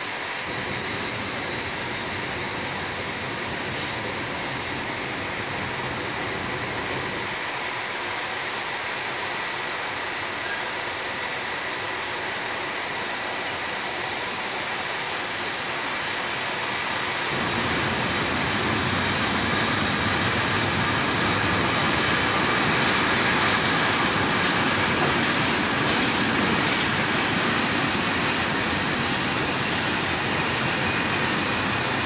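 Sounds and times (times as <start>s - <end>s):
freight wagons rolling on rails: 17.3s - 32.0s.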